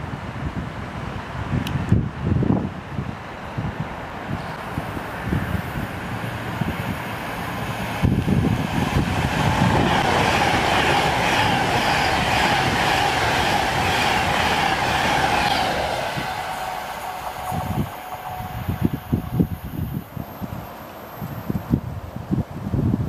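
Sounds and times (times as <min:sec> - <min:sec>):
train wheels rolling: 0:04.5 - 0:21.8
steady tone: 0:04.6 - 0:21.7.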